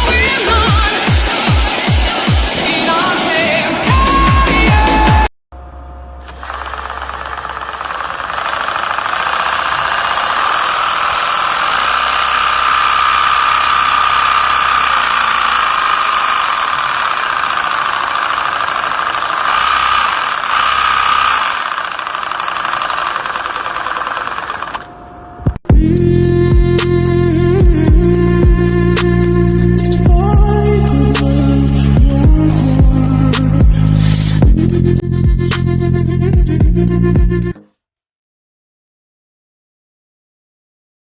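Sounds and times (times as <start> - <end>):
engine running loudly: 6.3 - 24.9.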